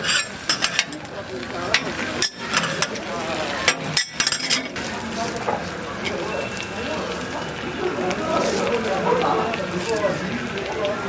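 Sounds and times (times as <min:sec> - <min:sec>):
metal spatulas scraping griddle: 0:00.0 - 0:01.1, 0:01.7 - 0:06.2
crowd chatter: 0:00.0 - 0:11.0
food sizzling: 0:00.0 - 0:11.0.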